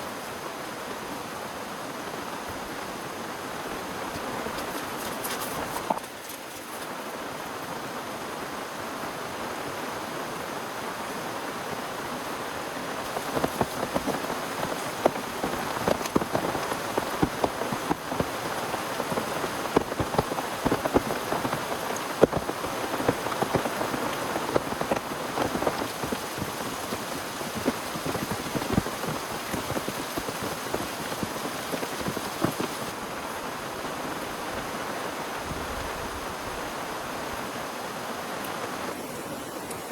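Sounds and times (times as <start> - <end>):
heavy rain: 0.0 - 39.9
raindrops tapping a surface: 13.0 - 33.0.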